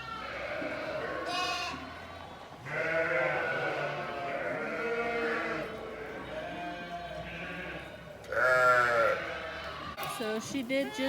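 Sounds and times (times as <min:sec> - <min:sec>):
sheep bleating: 0:00.0 - 0:11.0.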